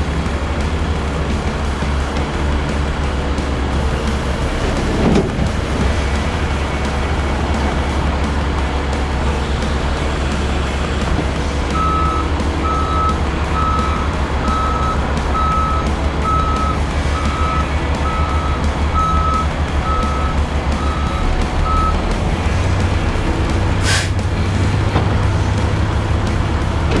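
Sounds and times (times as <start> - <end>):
loader engine running: 0.0 - 27.0
backup alarm beeping: 11.7 - 22.1.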